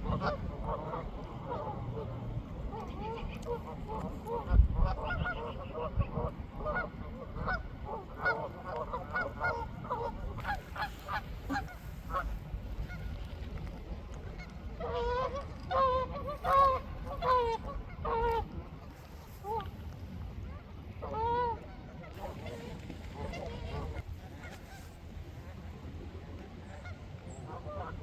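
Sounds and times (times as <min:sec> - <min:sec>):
waterfowl honking: 0:00.0 - 0:02.1, 0:02.7 - 0:13.2, 0:14.4 - 0:18.4, 0:21.0 - 0:24.9.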